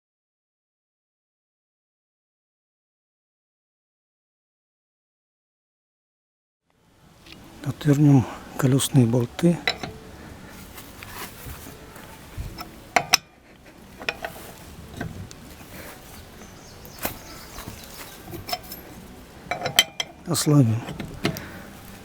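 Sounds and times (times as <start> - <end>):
wheel wrench clicking on bolts: 9.6 - 10.0, 14.0 - 15.1, 18.3 - 20.2.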